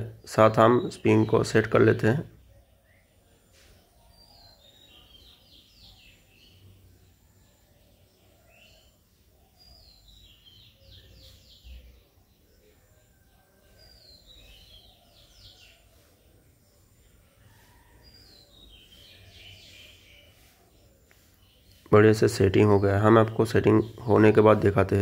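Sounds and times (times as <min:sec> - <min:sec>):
bird song: 0:00.0 - 0:25.0.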